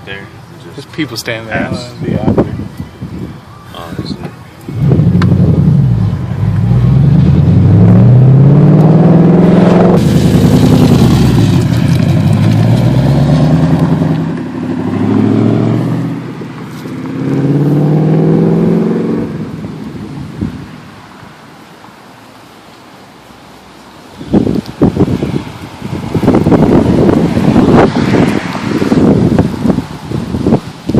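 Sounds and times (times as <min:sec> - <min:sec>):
car engine accelerating hard: 0:04.8 - 0:19.5, 0:25.0 - 0:30.6.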